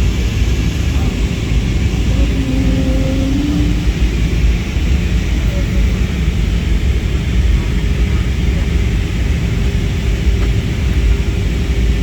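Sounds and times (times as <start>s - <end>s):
airliner engine rumble: 0.0s - 12.0s.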